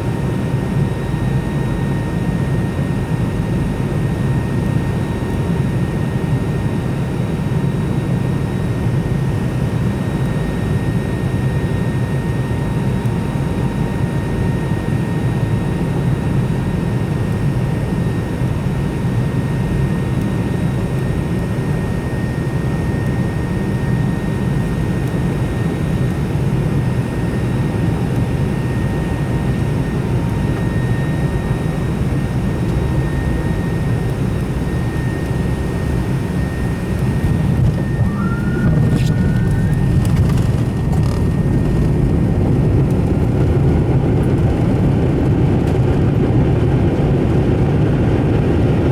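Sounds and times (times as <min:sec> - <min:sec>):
faint turbofan whine: 0:00.0 - 0:48.9
airliner cabin rumble: 0:21.2 - 0:48.9.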